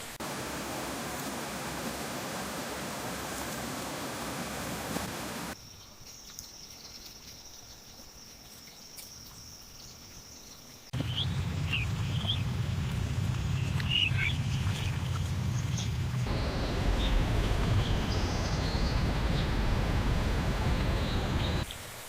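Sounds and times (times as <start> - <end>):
steady hiss: 0.0 - 5.6, 11.0 - 22.0
bird chirps: 8.7 - 12.5, 13.5 - 21.6
low rumble: 11.0 - 21.6.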